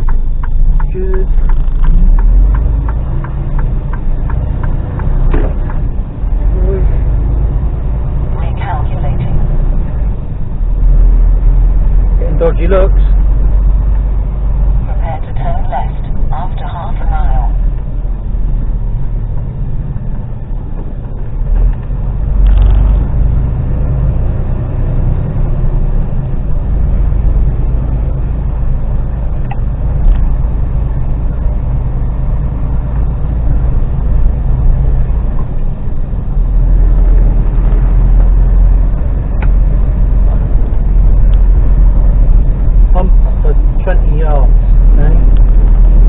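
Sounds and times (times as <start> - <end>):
diesel lorry engine drone: 0.0 - 46.0.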